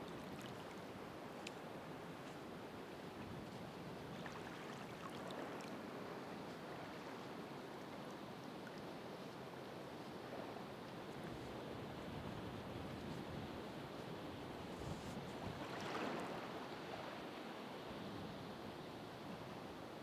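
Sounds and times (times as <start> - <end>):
ocean waves washing on shore: 0.0 - 18.6
faint high ticks: 1.4 - 1.6.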